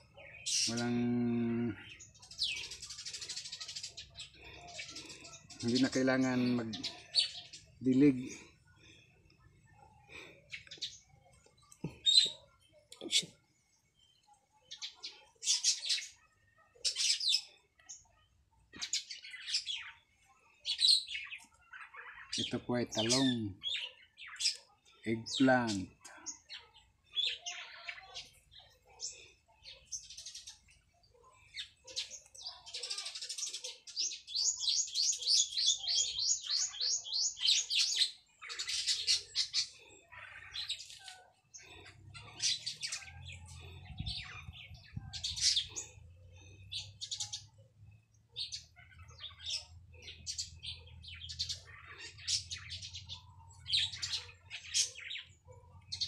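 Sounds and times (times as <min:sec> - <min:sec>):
small birds chirping: 0:00.0 - 0:56.0
bird trill: 0:14.7 - 0:56.0.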